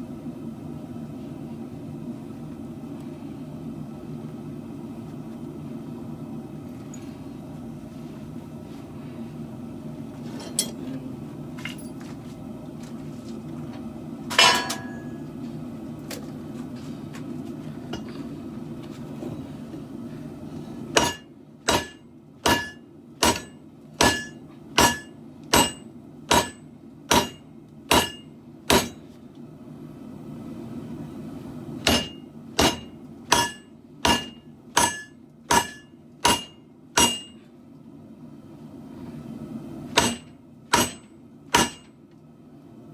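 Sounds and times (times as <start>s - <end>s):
hammer ringing on steel blade: 14.4s - 15.2s, 31.9s - 37.4s.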